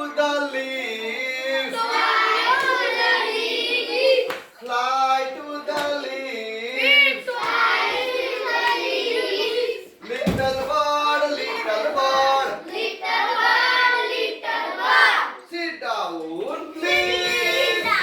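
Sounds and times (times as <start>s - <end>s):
children singing: 0.0s - 15.4s, 16.6s - 18.0s
sharp clap: 4.2s - 4.8s.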